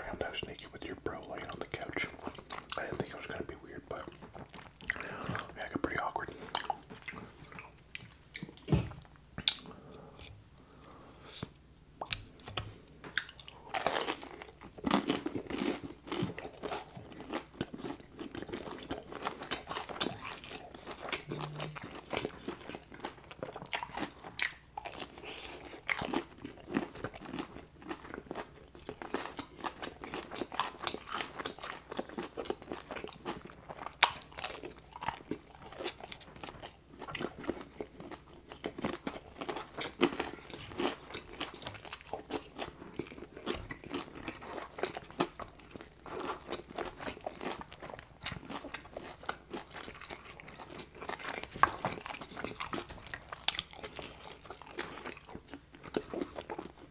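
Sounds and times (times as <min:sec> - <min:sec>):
crunching fried chicken: 0:13.2 - 0:56.9.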